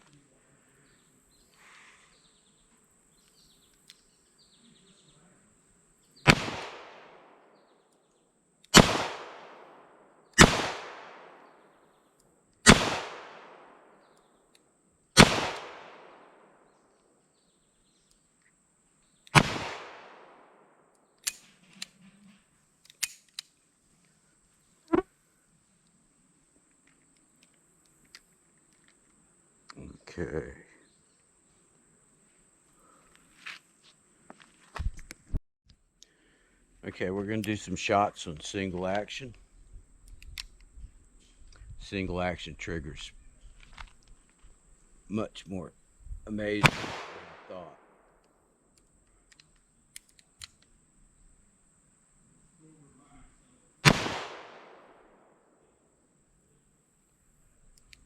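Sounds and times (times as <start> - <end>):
revolver shots with echo: 6.3 - 7.4, 8.8 - 11.5, 12.7 - 13.9, 15.2 - 16.4, 19.4 - 20.4, 46.6 - 47.6, 53.8 - 55.1.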